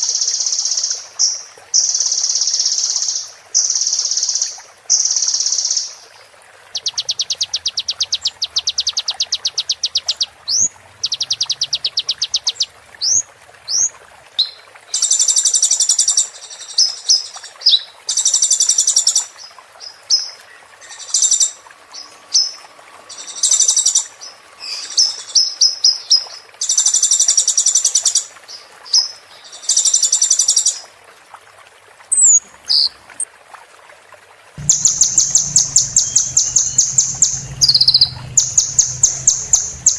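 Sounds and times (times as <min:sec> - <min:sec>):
bird chips: 0:34.6 - 0:39.9
bird trilling: 0:34.6 - 0:39.9
bird whistles: 0:34.6 - 0:39.9.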